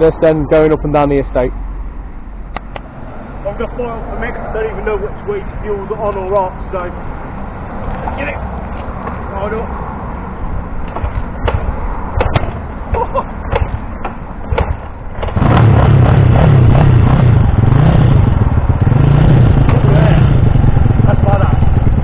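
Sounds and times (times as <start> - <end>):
motorcycle engine running: 14.6 - 22.0.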